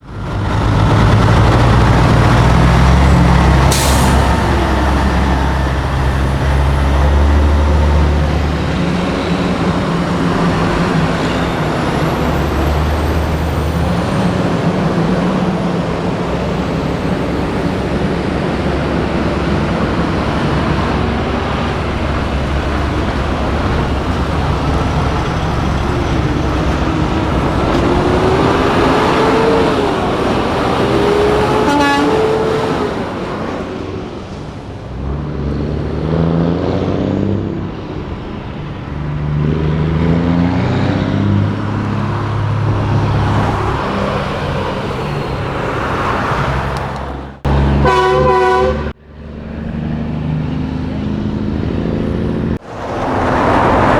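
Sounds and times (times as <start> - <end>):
diesel truck engines: 0.0 - 53.9
air brakes hissing: 3.5 - 6.8.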